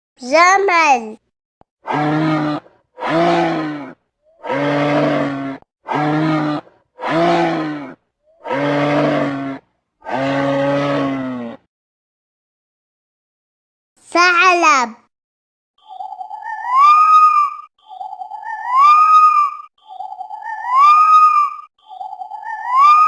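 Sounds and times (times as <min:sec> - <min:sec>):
camel calling: 0:01.9 - 0:11.6.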